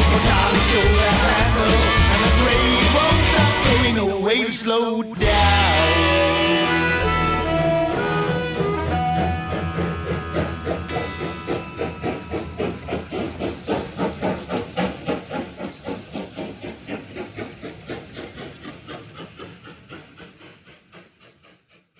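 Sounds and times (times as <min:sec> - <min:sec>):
hissing chuffs imitating steam train: 0:00.0 - 0:21.9
band holding last notes: 0:05.2 - 0:12.0.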